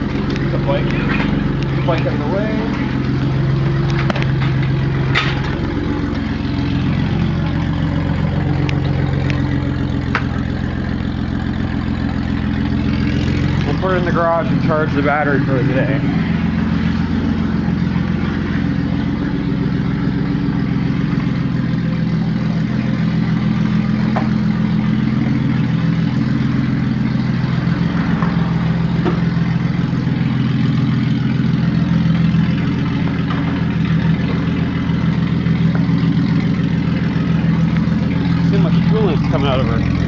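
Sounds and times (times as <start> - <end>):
car engine idling: 0.0 - 40.0.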